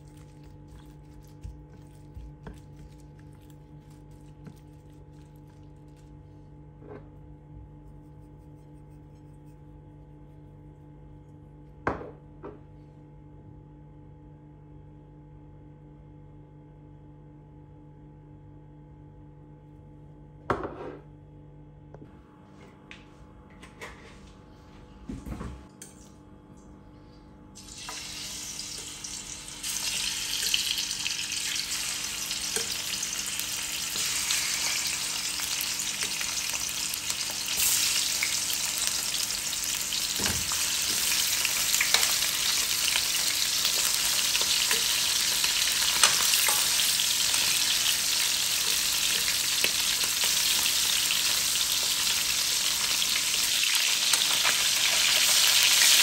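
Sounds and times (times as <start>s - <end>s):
chicken sizzling in hot oil: 0.0s - 1.7s, 27.6s - 56.0s.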